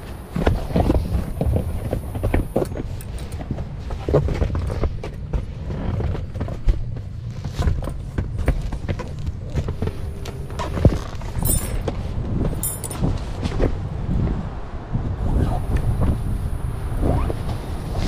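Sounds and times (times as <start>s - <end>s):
wind buffeting microphone: 10.9s - 18.0s.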